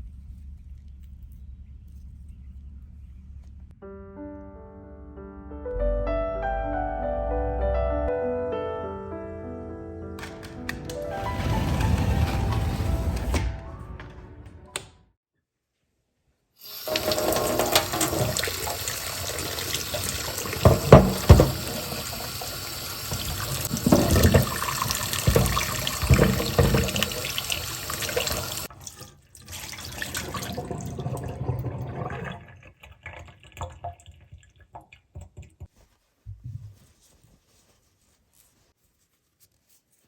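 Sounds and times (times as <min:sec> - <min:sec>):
tap water running into sink: 0:16.6 - 0:35.7.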